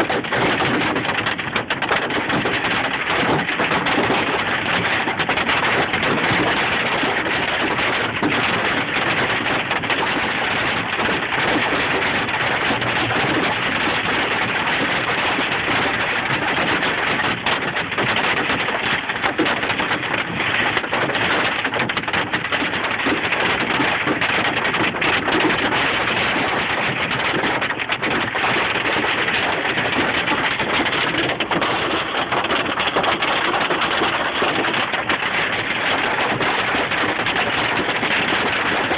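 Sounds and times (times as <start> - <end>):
hail and rain pelting: 0.0 - 38.9.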